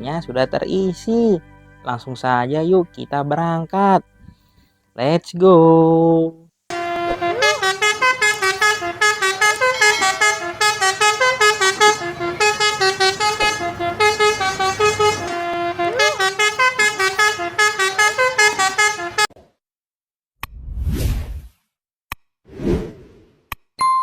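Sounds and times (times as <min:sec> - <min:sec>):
multi-tone bus horn tune: 0:06.7 - 0:19.4.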